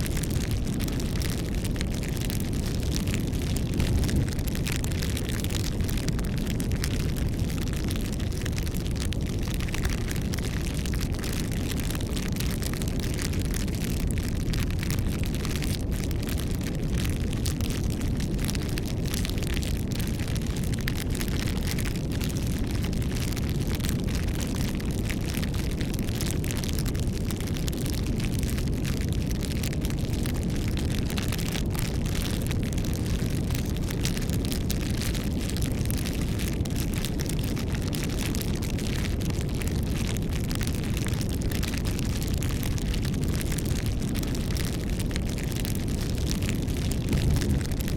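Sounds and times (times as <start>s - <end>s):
campfire crackling and popping: 0.0s - 47.9s.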